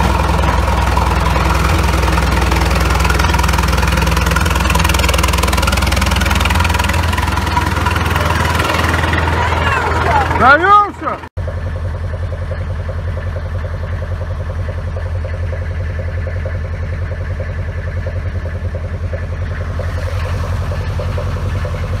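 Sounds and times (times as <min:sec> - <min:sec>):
tractor diesel engine idling: 0:00.0 - 0:22.0.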